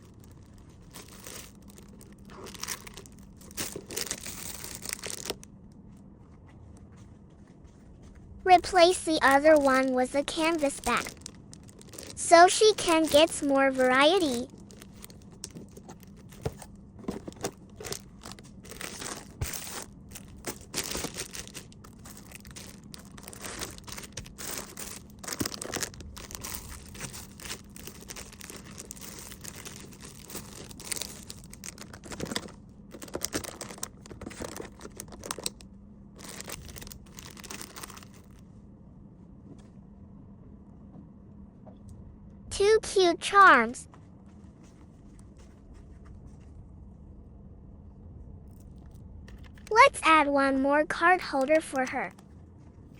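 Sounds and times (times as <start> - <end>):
plastic packaging crinkling: 0.0 - 5.5, 8.5 - 35.6, 36.2 - 38.4
faint steady hum: 0.0 - 52.9.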